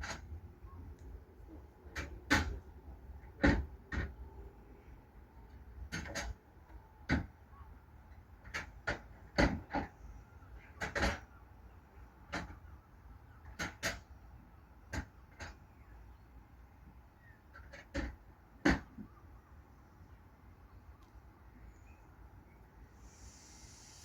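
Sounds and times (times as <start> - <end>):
wheels clacking over rail joints: 0.0 - 1.1, 1.9 - 4.5, 5.4 - 11.4, 13.4 - 15.8, 17.4 - 19.1.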